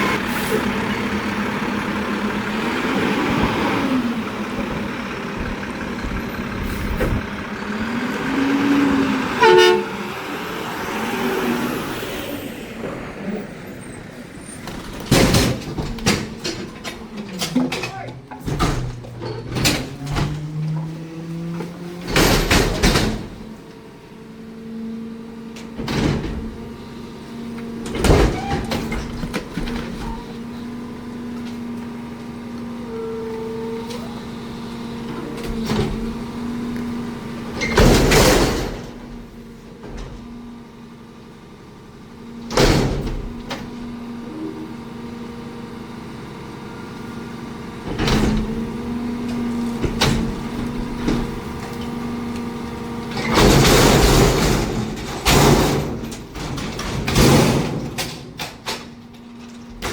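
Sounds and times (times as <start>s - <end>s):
garbage truck engine running: 0.0s - 59.9s
metallic bangs and clanks: 53.1s - 59.9s.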